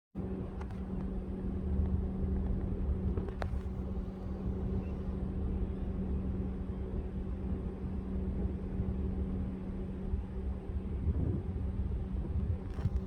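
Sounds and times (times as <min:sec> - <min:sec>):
constant hum: 0:00.2 - 0:13.0.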